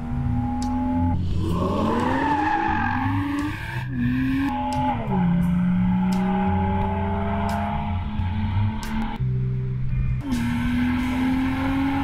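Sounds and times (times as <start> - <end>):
car engine revving hard: 10.2 - 12.0.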